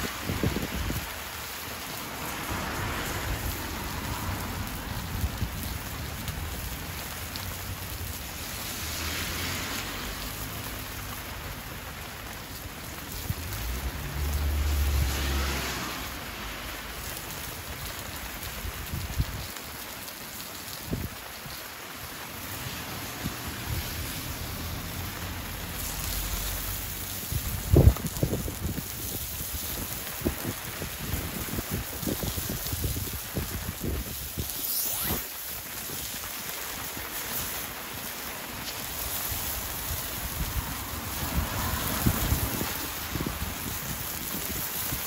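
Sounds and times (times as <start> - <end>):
wind buffeting microphone: 0.0 - 1.4, 27.2 - 35.2, 38.9 - 45.0
rain hissing: 0.0 - 45.0
wood fire crackling: 0.0 - 45.0.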